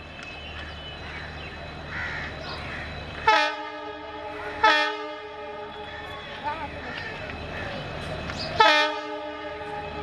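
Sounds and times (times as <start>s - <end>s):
locomotive horn blasts: 3.3s - 6.3s, 8.6s - 10.0s.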